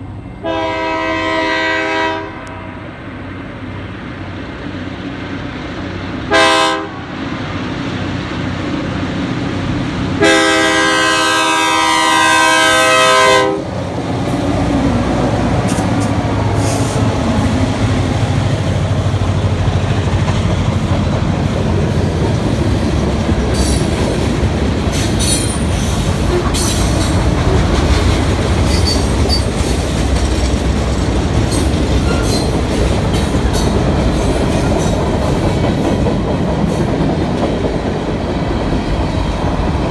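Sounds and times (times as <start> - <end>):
clatter of passing train cars: 0.0 - 39.9
diesel locomotive rumble: 0.0 - 39.9
train horn blasts: 0.3 - 3.0, 6.3 - 7.2, 10.2 - 13.8
wheel squeals: 28.7 - 29.8.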